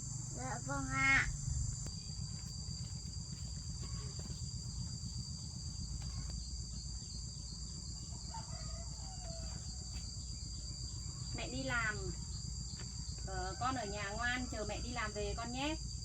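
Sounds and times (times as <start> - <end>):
insects chirring: 0.0 - 16.0
faint animal call: 0.4 - 1.5.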